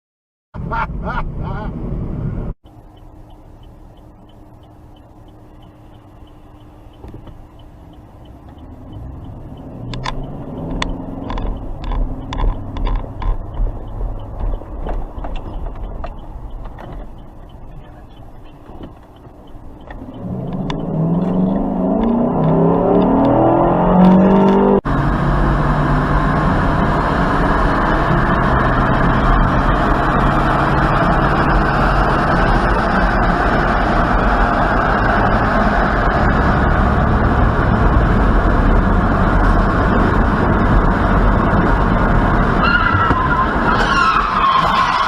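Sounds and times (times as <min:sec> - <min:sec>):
car engine accelerating: 0:00.6 - 0:45.0
sharp clicks: 0:02.8 - 0:23.4.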